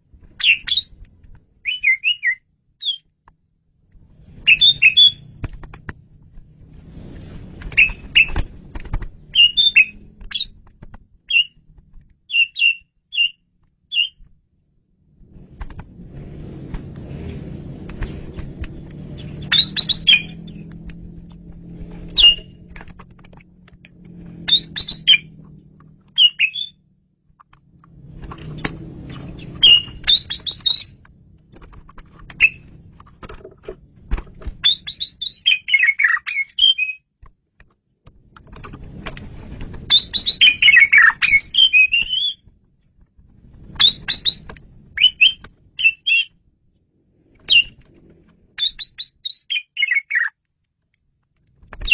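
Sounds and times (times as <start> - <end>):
starling singing: 0.4 - 0.9, 1.6 - 3.1, 4.4 - 5.2, 9.3 - 10.6, 19.4 - 20.7, 22.2 - 22.6, 24.5 - 25.4, 26.2 - 26.8, 29.3 - 31.0, 34.6 - 37.0, 39.9 - 42.4, 45.0 - 46.3, 48.6 - 50.3.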